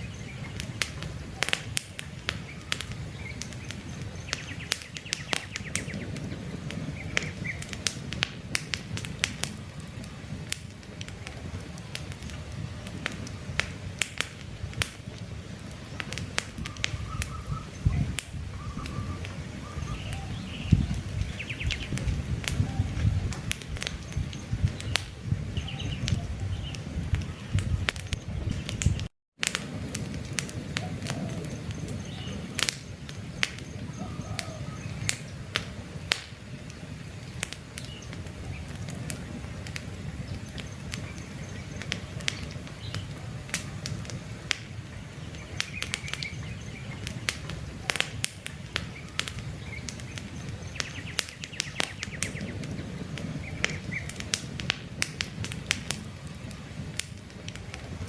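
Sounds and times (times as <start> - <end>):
birds chirping faintly: 0.0 - 7.9, 15.0 - 29.1, 30.6 - 54.4
campfire crackling and popping: 0.0 - 58.0.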